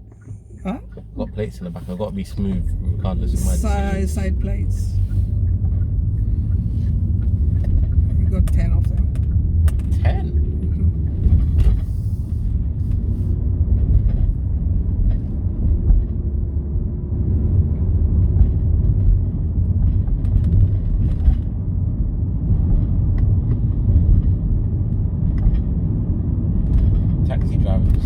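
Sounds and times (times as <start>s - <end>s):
car cabin rumble: 0.0s - 28.0s.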